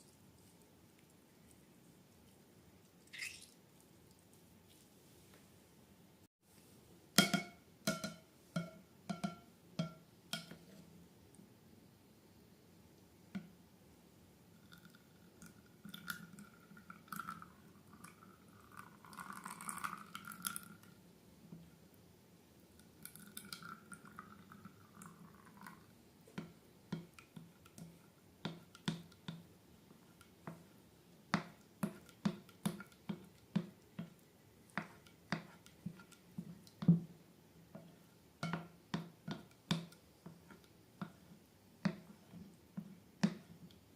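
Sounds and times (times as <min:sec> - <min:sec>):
slime squelching: 0:02.2 - 0:04.3.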